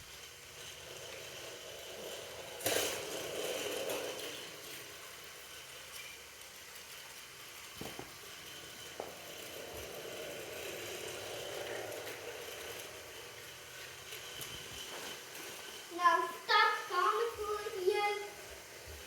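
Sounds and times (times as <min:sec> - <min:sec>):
toy train whirring on track: 0:00.0 - 0:19.0.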